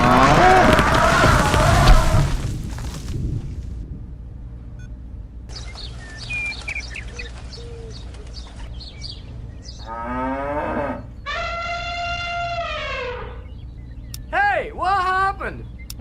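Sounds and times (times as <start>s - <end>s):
steady low hum: 0.0s - 16.0s
birds chirping: 4.4s - 16.0s
cattle mooing: 9.8s - 13.5s.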